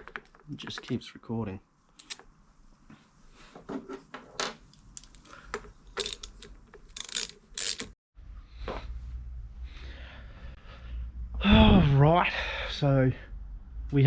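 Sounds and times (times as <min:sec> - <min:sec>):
handling scrapes and knocks: 0:03.4 - 0:08.0.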